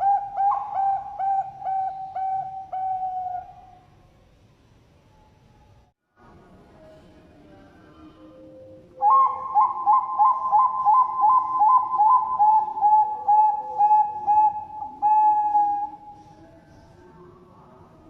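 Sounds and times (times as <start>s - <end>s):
dove cooing: 0.0s - 3.8s, 9.0s - 16.4s.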